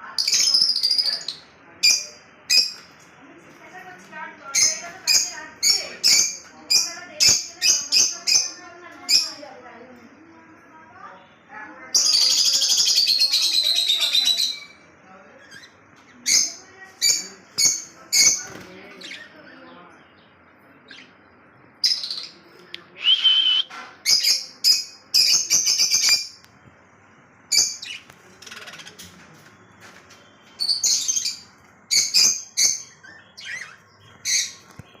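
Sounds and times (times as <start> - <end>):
lovebirds chirping shrilly: 30.4 - 35.0.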